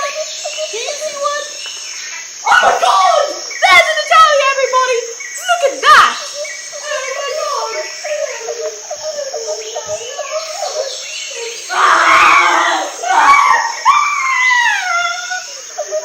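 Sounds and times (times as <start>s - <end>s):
young voices: 0.0s - 1.6s, 2.4s - 16.0s
loud screaming: 2.4s - 3.4s, 11.4s - 16.0s.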